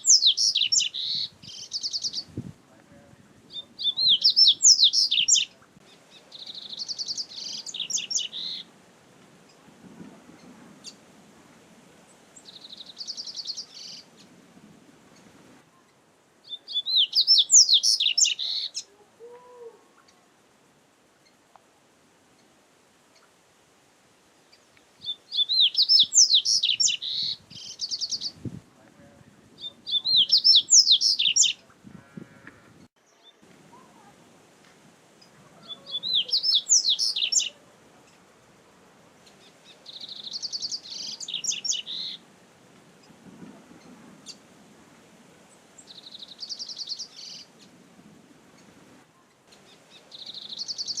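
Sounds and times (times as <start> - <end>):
bird singing whistled notes: 0.0 - 2.4, 3.5 - 5.6, 6.3 - 8.7, 16.4 - 18.8, 25.0 - 28.4, 29.6 - 31.6, 35.6 - 37.6, 39.4 - 42.2, 45.8 - 47.5, 49.6 - 51.0.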